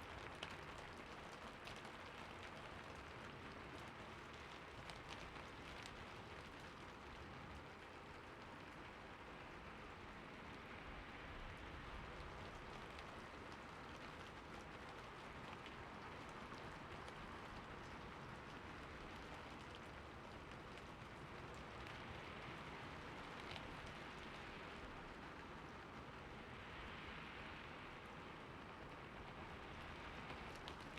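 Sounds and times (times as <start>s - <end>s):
steady soft rain hiss: 0.0s - 30.9s
raindrops ticking: 28.7s - 30.9s.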